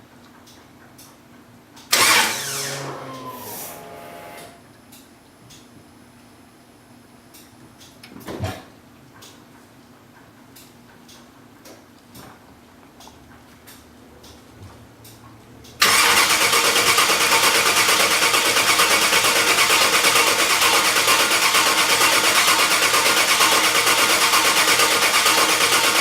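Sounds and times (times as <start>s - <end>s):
starter motor cranking engine: 1.9s - 4.6s, 15.8s - 26.0s.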